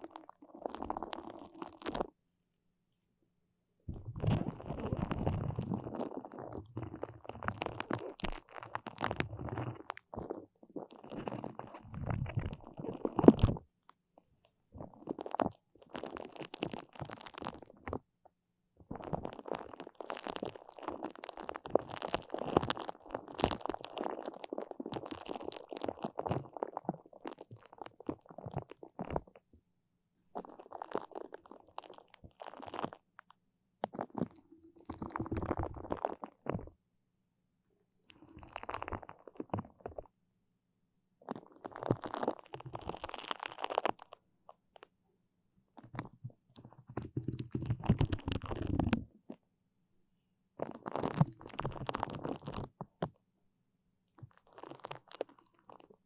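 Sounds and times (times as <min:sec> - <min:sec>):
sticky crackling of tacky material: 0:00.0 - 0:02.1, 0:03.9 - 0:13.6, 0:14.8 - 0:18.0, 0:18.9 - 0:29.4, 0:30.4 - 0:36.7, 0:38.1 - 0:40.1, 0:41.2 - 0:44.9, 0:45.7 - 0:49.4, 0:50.6 - 0:53.2, 0:54.2 - 0:56.0.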